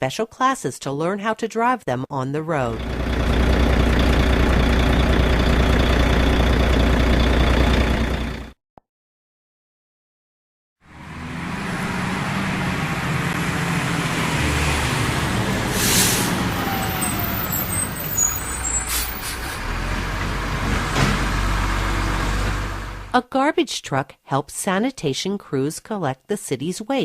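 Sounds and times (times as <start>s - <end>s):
road traffic: 2.7s - 8.6s, 10.8s - 23.2s
truck engine running: 2.7s - 8.6s, 10.9s - 23.2s
air hiss: 15.7s - 16.4s.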